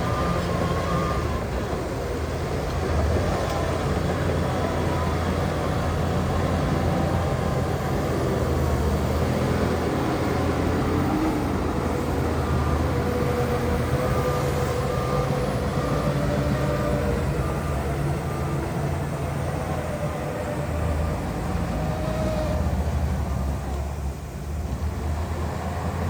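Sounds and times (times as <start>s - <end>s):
heavy diesel engines running: 0.0s - 26.0s
reversing alarm beeping: 12.3s - 20.3s.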